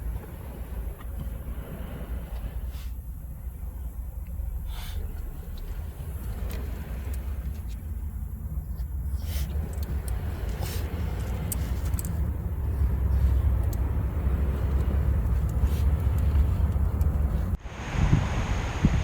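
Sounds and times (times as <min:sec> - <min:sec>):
surf: 0:00.0 - 0:08.2
car road and engine rumble: 0:00.0 - 0:19.0
gusty wind: 0:00.0 - 0:19.0.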